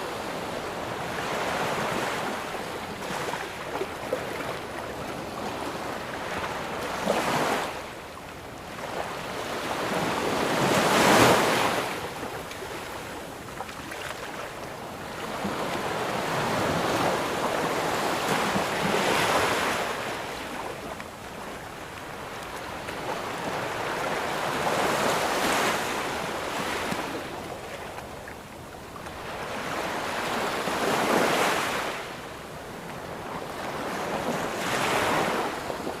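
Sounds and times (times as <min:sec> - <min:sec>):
ocean waves breaking on beach: 0:00.0 - 0:36.0.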